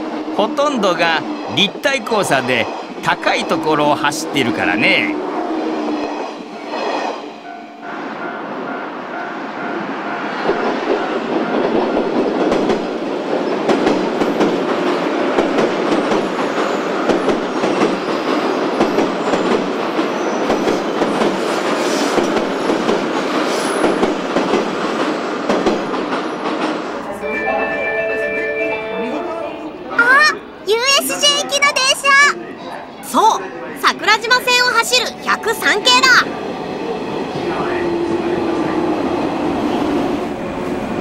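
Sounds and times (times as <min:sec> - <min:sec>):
train wheels rumbling: 0:00.0 - 0:27.1
clickety-clack over rail joints: 0:10.2 - 0:27.0.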